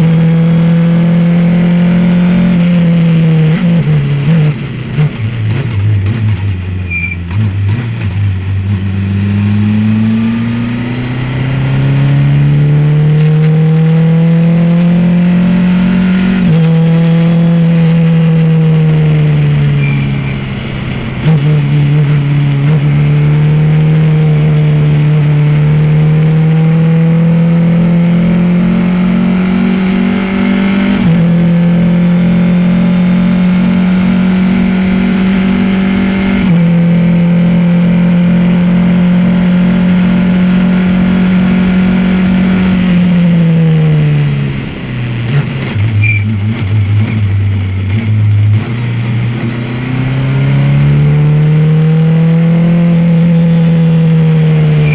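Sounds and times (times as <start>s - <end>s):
race car engine pulling hard: 0.0s - 54.9s.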